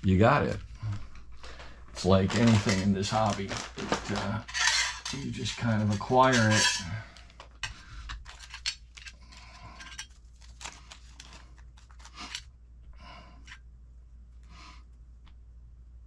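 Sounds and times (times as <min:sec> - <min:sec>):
small screws clicking and rattling: 0:04.5 - 0:05.3.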